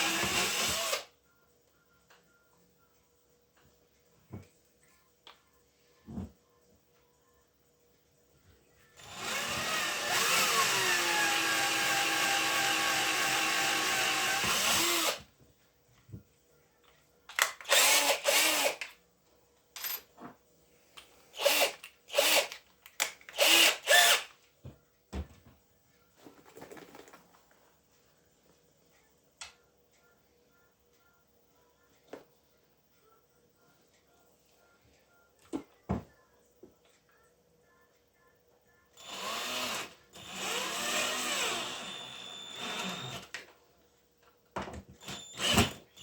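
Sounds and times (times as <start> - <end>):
electric power tool whirring: 9.0 - 15.2, 17.7 - 18.8, 21.4 - 22.6, 23.4 - 24.3, 39.0 - 43.4, 45.0 - 46.0.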